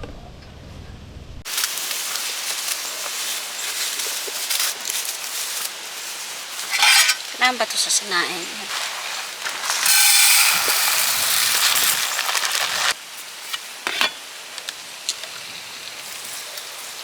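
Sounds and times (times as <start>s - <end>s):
water pouring in hissing rush: 1.5s - 7.4s, 8.6s - 13.1s.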